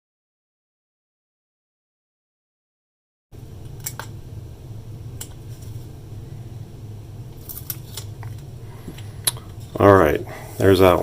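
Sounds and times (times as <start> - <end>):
low hum: 3.4 - 11.0
hands handling tape: 7.3 - 9.6.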